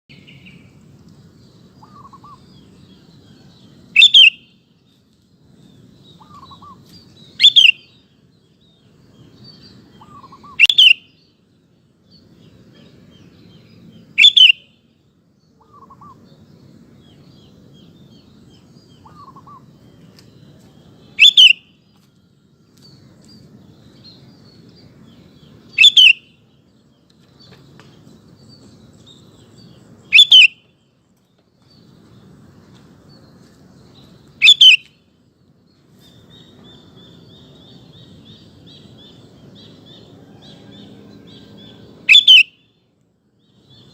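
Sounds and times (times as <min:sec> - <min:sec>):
soft bird chirps: 0:00.1 - 0:43.9
bulbul calling: 0:01.8 - 0:02.6, 0:04.0 - 0:04.5, 0:06.1 - 0:08.0, 0:09.9 - 0:11.3, 0:14.2 - 0:14.7, 0:21.2 - 0:21.8, 0:25.7 - 0:26.4, 0:30.0 - 0:30.8, 0:34.4 - 0:35.0, 0:41.6 - 0:42.7.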